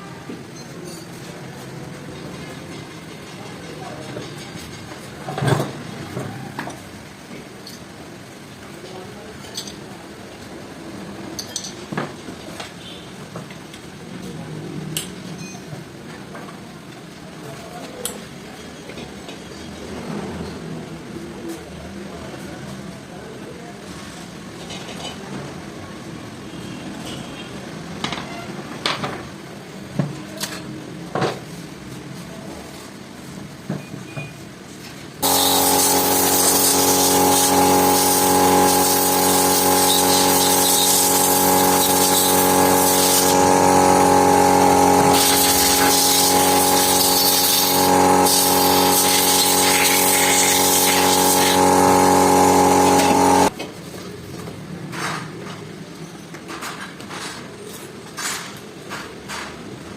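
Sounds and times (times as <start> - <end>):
electric power tool running: 35.2 - 53.5.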